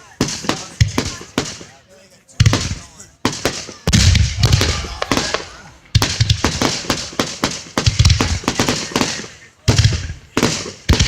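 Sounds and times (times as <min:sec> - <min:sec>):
firework shells booming: 0:00.0 - 0:01.7, 0:02.4 - 0:11.0
firework crackling: 0:02.4 - 0:11.0.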